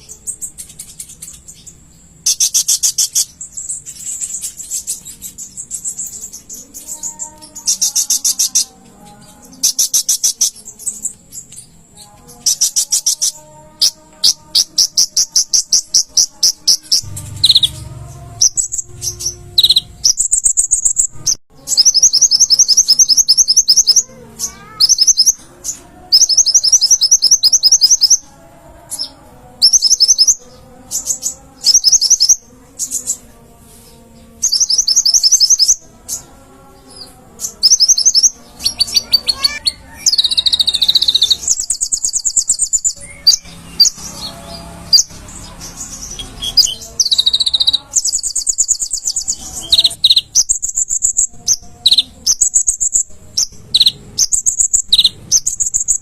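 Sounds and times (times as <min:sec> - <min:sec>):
sunbird trilling chatter: 0:18.4 - 0:28.2, 0:37.5 - 0:56.0.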